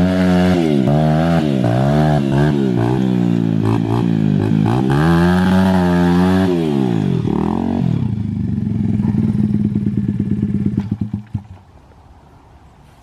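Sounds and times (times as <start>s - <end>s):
dirt bike engine revving: 0.0s - 11.6s.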